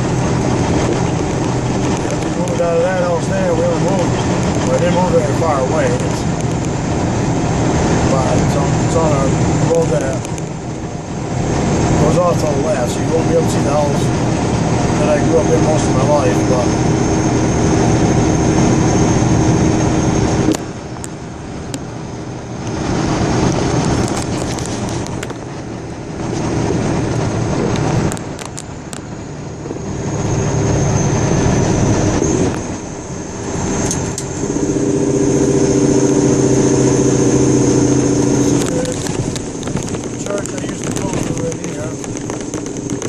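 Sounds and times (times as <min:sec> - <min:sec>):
car engine and tyre noise: 0:00.0 - 0:43.0.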